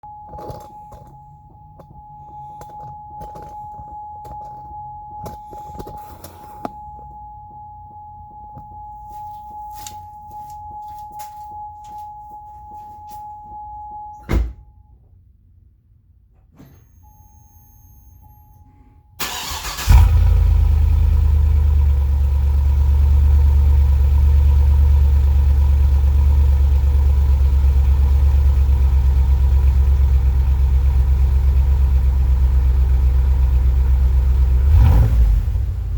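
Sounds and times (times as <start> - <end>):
car engine cranking and idling: 0.0 - 7.2, 19.2 - 35.9.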